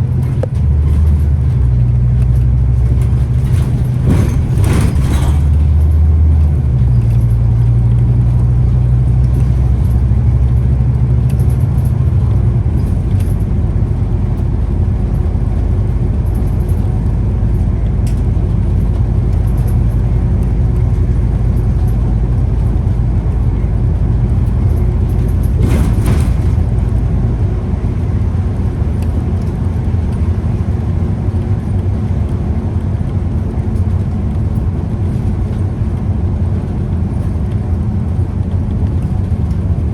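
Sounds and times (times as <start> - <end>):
bus diesel engine rumble: 0.0 - 39.9.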